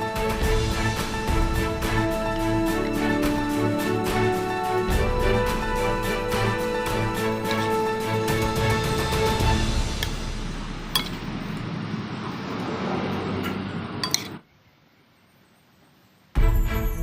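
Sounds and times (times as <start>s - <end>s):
music: 0.0s - 11.8s, 16.4s - 17.0s.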